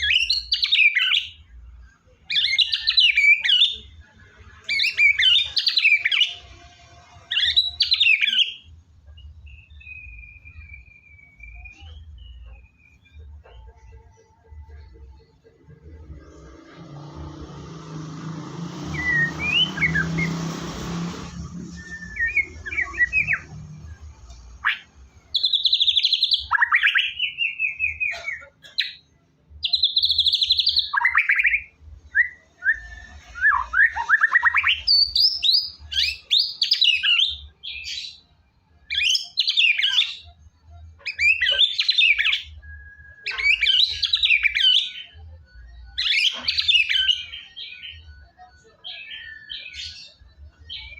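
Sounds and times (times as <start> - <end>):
bird singing whistles and trills: 0.0 - 1.6, 2.2 - 3.9, 4.6 - 6.6, 7.2 - 13.8, 18.8 - 50.9.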